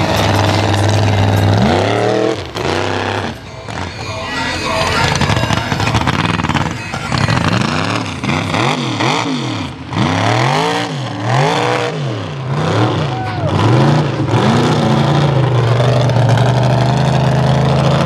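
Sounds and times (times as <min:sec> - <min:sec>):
heavy rushing noise: 0:00.0 - 0:11.5
truck engine revving: 0:00.0 - 0:18.0.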